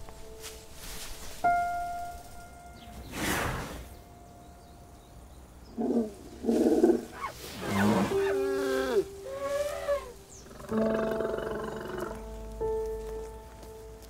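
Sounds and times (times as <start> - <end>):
soft background music: 0.0 - 14.0
elephant calling: 5.7 - 12.3.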